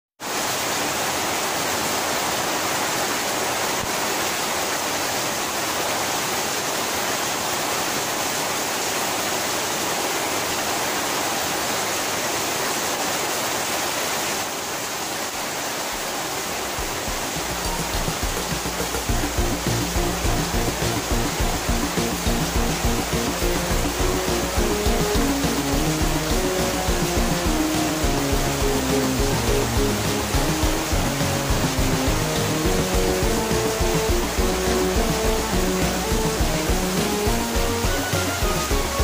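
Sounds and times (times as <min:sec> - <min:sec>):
heavy rain pouring: 0:00.2 - 0:39.0
runoff splashing on paving: 0:12.8 - 0:39.0
music: 0:16.8 - 0:39.0.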